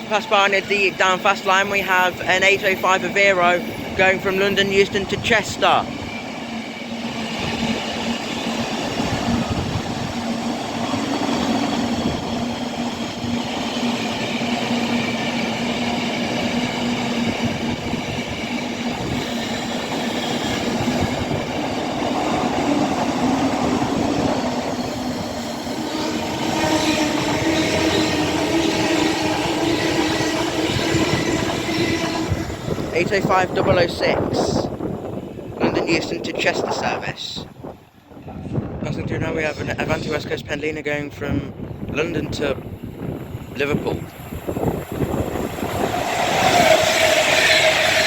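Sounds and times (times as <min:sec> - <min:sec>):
train humming tones: 0:00.0 - 0:36.8, 0:41.4 - 0:48.0
train wheels rushing on rail: 0:00.0 - 0:48.0.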